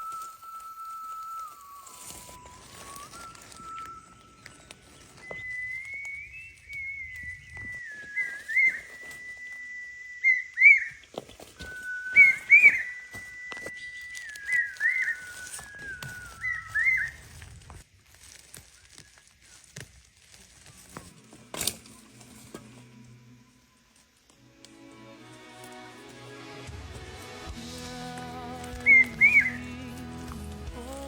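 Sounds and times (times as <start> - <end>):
whistled melody: 0.0 - 17.7, 24.4 - 31.0.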